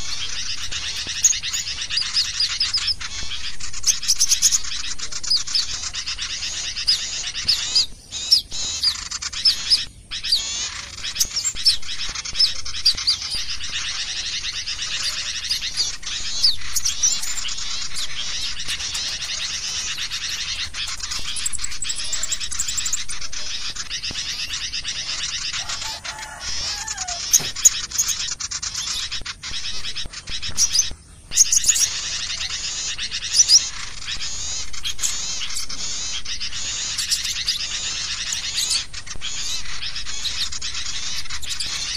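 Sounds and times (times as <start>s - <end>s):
small birds chattering and chirping: 0.0s - 41.9s.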